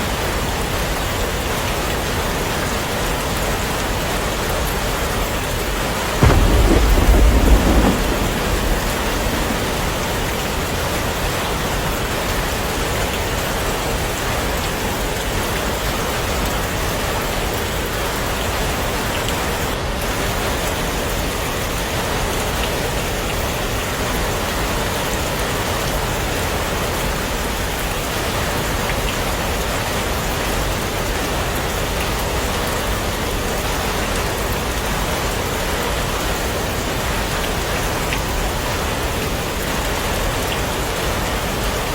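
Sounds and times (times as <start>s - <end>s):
heavy rain falling: 0.0s - 41.9s
low rumble of thunder: 6.2s - 12.7s.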